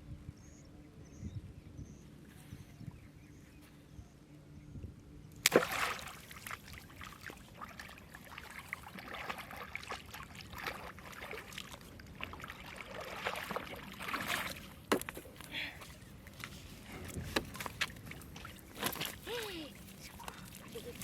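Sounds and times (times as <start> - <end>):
water splashing and sloshing: 5.4 - 21.0.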